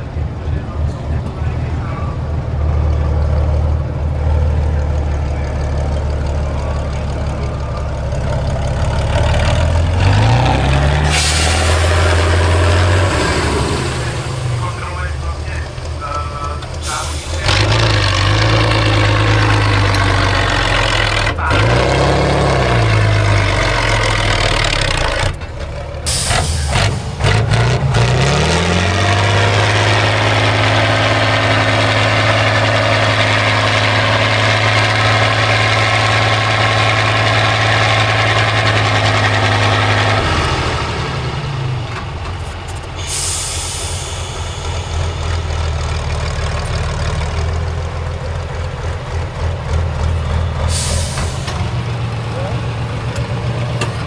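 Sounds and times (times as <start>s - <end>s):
diesel truck engine revving: 0.0s - 54.0s
short hisses: 11.0s - 14.8s, 43.0s - 45.3s.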